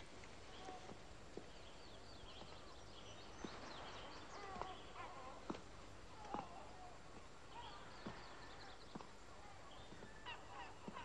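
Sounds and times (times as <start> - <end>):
faint bird chirps: 0.5 - 5.5.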